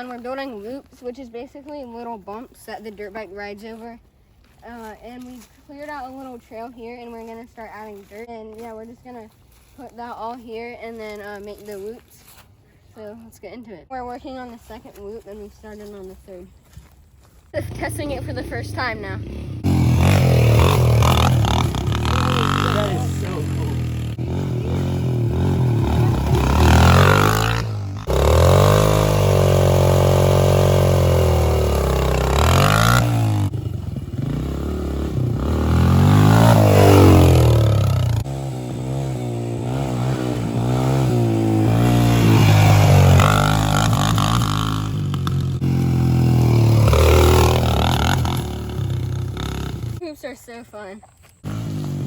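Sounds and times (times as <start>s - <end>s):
dirt bike engine revving: 17.6s - 52.0s.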